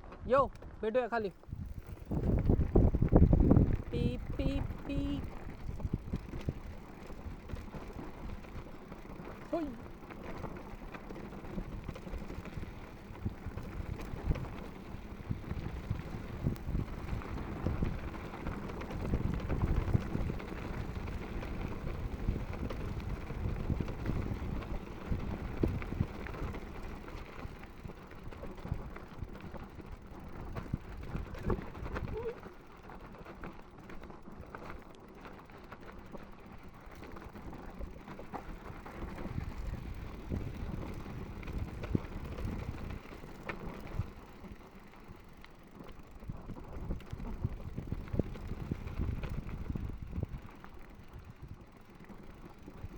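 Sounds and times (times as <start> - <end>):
mountain bike rattling on trail: 0.0 - 52.9.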